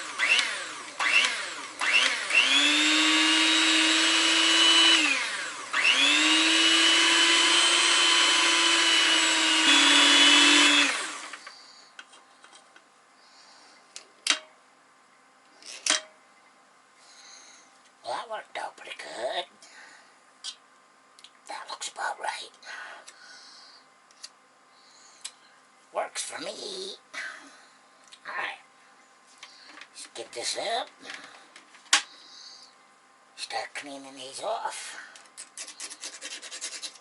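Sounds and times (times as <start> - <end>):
electric mixer whining: 0.0 - 11.4.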